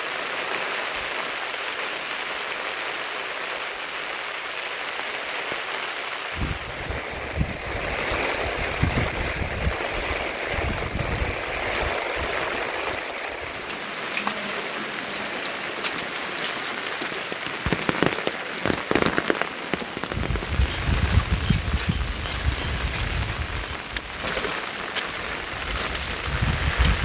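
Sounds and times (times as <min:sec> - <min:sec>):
steady rain: 0:00.0 - 0:27.0
drops hitting a surface: 0:17.4 - 0:20.3.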